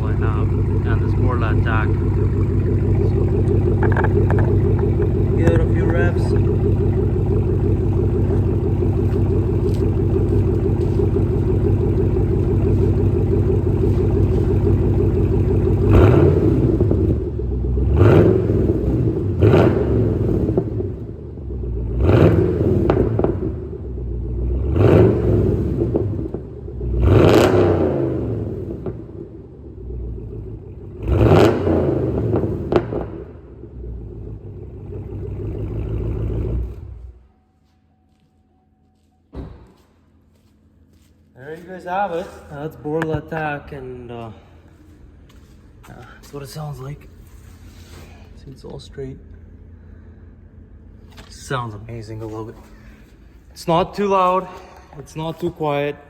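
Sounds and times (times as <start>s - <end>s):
car engine revving: 0.0s - 37.5s
car engine idling: 0.0s - 56.0s.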